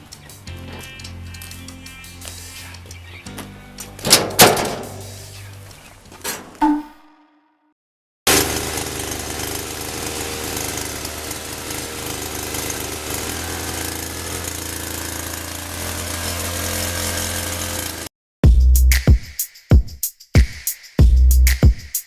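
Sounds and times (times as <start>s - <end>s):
small motor running: 8.3s - 18.1s.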